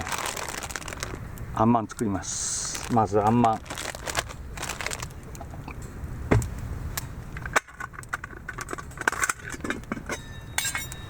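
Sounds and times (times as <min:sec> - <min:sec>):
small metal clinks: 0:08.5 - 0:11.0.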